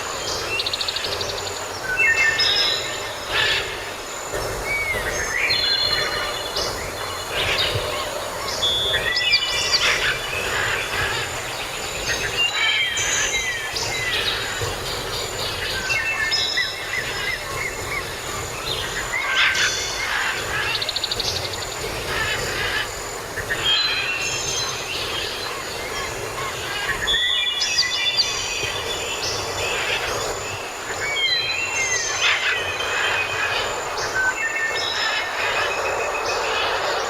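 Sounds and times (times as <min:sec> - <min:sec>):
songbirds chirping and trilling: 0:00.0 - 0:37.0
steady background hiss: 0:00.0 - 0:37.0.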